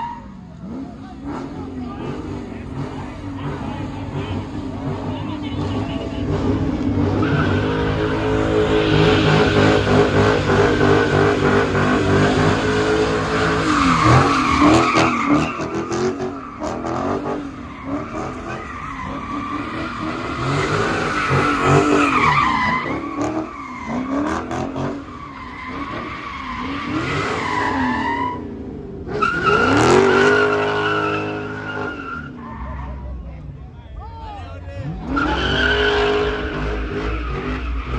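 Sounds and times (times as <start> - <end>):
car engine revving: 0.0 - 33.4, 34.7 - 37.9
tyres squealing: 5.6 - 28.4.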